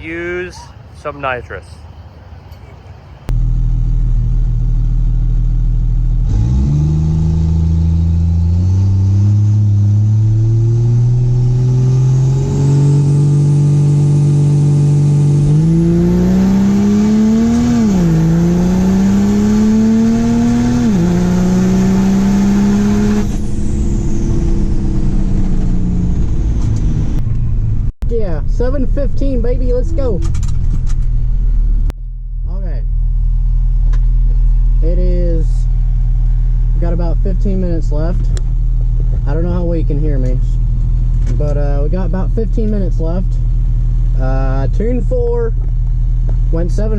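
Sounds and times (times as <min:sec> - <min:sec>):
diesel truck engine revving: 0:03.2 - 0:31.9.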